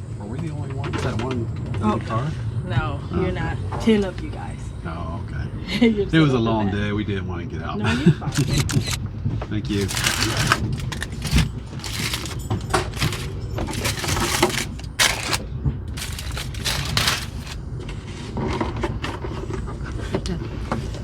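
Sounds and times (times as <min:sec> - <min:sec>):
moving train rumble: 0:08.3 - 0:21.0
dinnerware clattering on table: 0:09.8 - 0:15.4.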